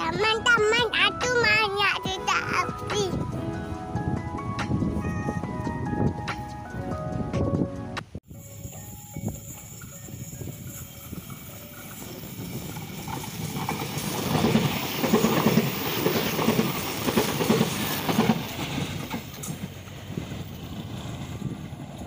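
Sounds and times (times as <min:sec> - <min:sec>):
train wheels clattering: 0:09.1 - 0:22.0.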